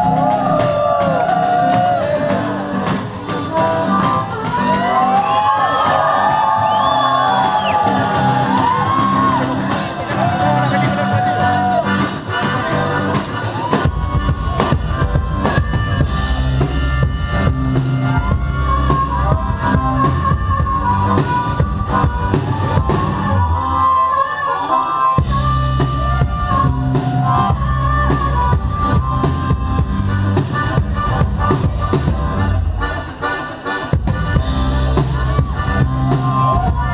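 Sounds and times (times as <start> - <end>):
whoops: 0.0 - 2.8, 4.4 - 12.0, 13.4 - 14.7, 18.1 - 28.4
drum kit: 0.0 - 23.6, 25.2 - 36.9
bass guitar: 0.0 - 36.9
live band music: 0.0 - 36.9
melodic lead line: 0.0 - 36.9.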